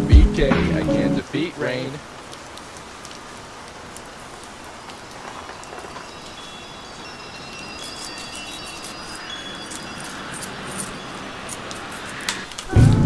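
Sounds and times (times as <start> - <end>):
rain hiss: 0.0 - 13.0
high chime-like tones: 6.1 - 13.0.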